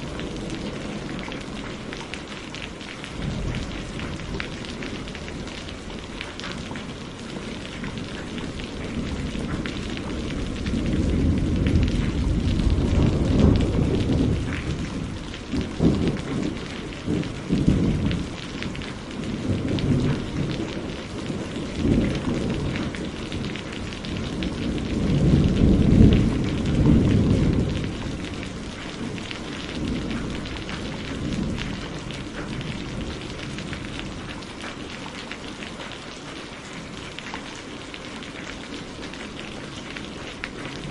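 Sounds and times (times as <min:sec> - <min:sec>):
steady rain: 0:00.0 - 0:40.9
thunder rolling: 0:07.4 - 0:34.4.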